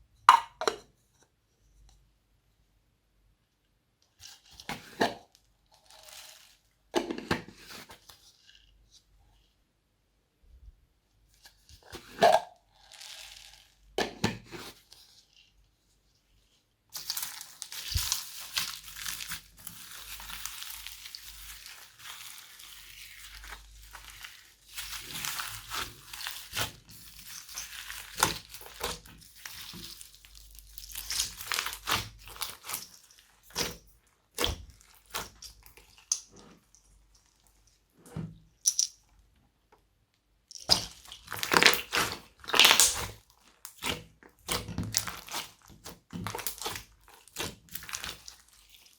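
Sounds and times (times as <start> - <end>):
slime crackling and popping: 17.0 - 36.2, 40.6 - 48.9.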